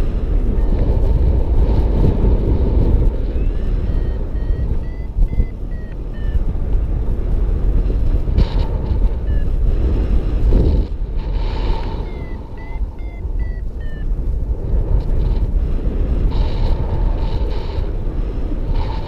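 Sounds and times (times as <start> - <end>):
wind buffeting microphone: 0.0 - 19.0
variometer short electronic beeps: 3.3 - 6.6, 9.0 - 9.6, 11.7 - 14.2.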